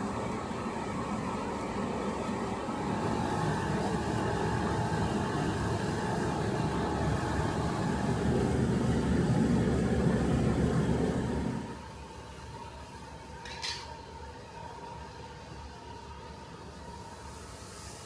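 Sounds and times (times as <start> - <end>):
machine running with low roar: 2.4 - 11.8.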